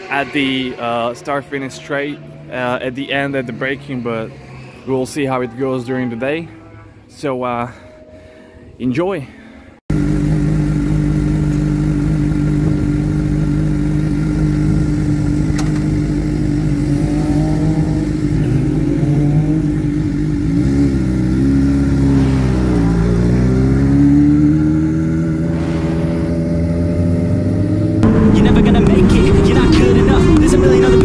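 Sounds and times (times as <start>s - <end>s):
motorcycle engine revving: 9.9s - 31.0s.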